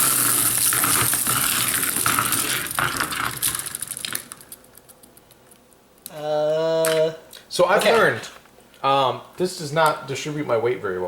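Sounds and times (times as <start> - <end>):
spinning tops whirring and clattering: 0.0 - 4.5.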